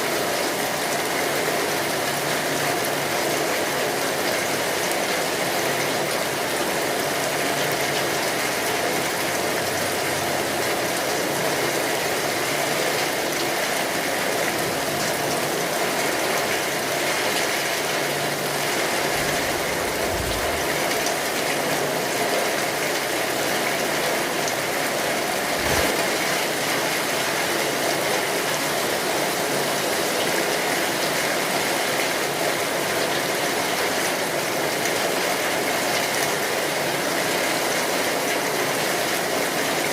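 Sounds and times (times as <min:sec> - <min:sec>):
rain patter: 0:00.0 - 0:39.9
low rumble: 0:18.9 - 0:21.5
low thump: 0:19.3 - 0:20.8.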